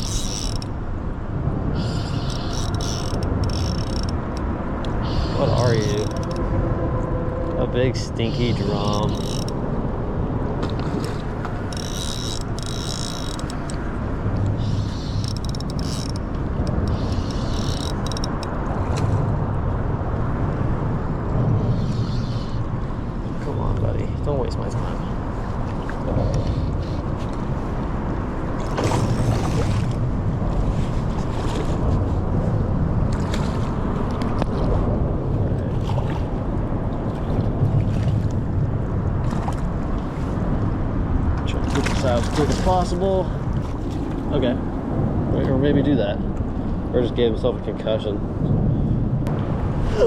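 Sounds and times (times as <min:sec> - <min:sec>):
fishing reel cranking: 0:00.0 - 0:00.7, 0:01.8 - 0:06.4, 0:08.5 - 0:09.6, 0:11.6 - 0:13.9, 0:14.6 - 0:18.6
wind rumbling on microphone: 0:00.0 - 0:50.0
rustling or splashing: 0:10.6 - 0:19.4, 0:25.4 - 0:32.4.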